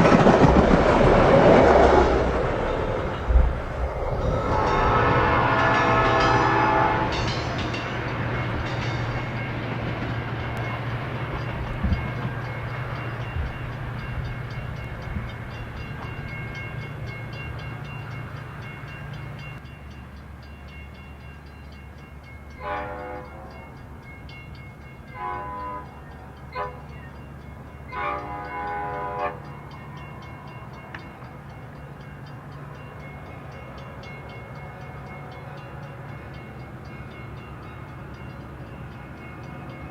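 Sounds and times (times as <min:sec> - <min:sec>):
locomotive engine drone: 0:00.0 - 0:20.4
train horn blasts: 0:02.5 - 0:08.3, 0:22.5 - 0:23.8, 0:25.1 - 0:27.1, 0:27.8 - 0:29.8.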